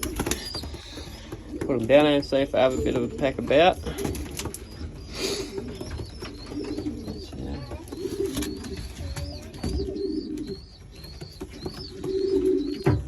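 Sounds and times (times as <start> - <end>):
pigeons cooing: 0.0 - 13.0
thin high peeping: 2.3 - 12.8.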